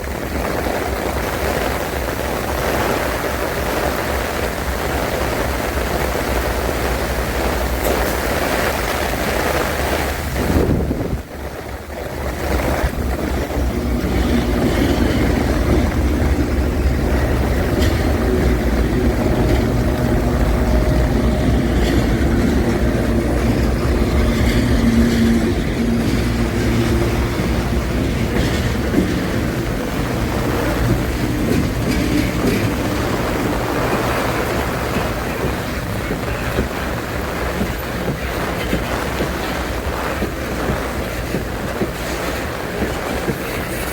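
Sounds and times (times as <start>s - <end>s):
freight train wheels rumbling: 0.0s - 43.9s
heavy rain: 0.0s - 43.9s
strong wind: 0.0s - 43.9s.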